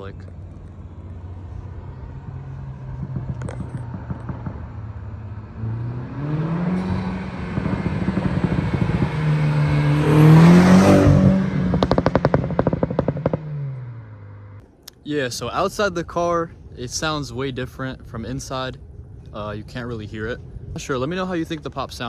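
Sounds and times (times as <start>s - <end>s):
exhaust pops and crackles: 0.0s - 14.0s, 14.6s - 22.0s
car accelerating past: 0.2s - 14.6s.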